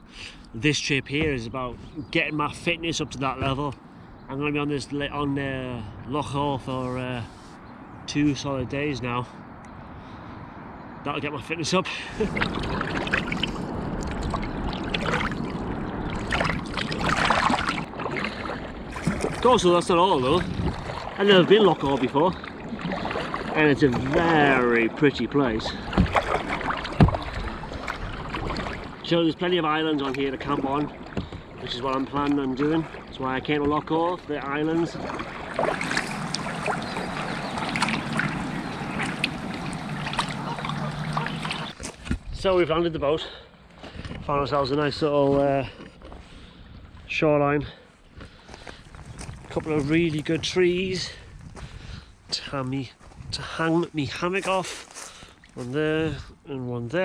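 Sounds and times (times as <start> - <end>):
steady wash of water: 11.8 - 41.8
paddle splashing through water: 12.0 - 42.1
steady low hum: 35.0 - 41.8.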